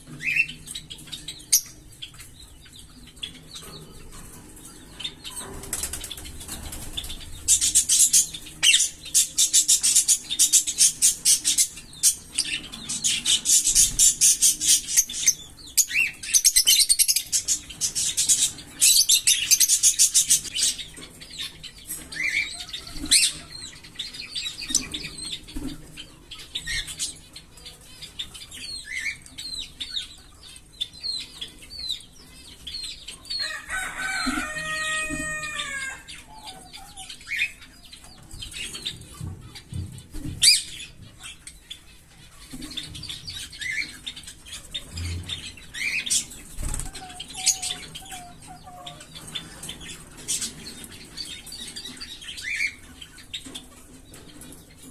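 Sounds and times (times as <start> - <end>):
parrots chattering: 33.3 - 37.8, 42.2 - 53.8.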